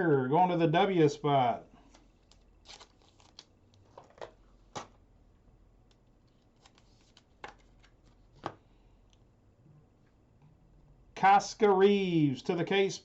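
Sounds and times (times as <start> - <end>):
cards sliding and rustling: 1.9 - 4.2, 6.4 - 8.6.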